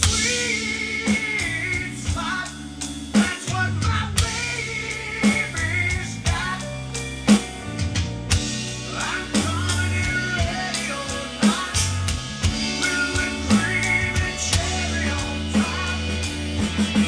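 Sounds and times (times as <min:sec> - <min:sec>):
rock music with drums guitar bass: 0:00.0 - 0:17.0
snare drum backbeat: 0:09.4 - 0:17.0.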